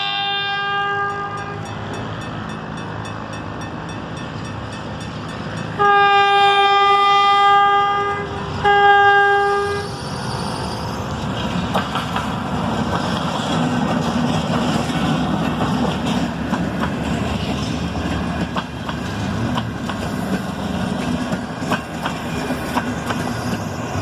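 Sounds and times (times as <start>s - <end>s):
locomotive horn blasts: 0.0s - 1.7s, 5.8s - 9.9s
passenger train rumble: 0.0s - 24.0s
train wheel clicks: 11.2s - 24.0s.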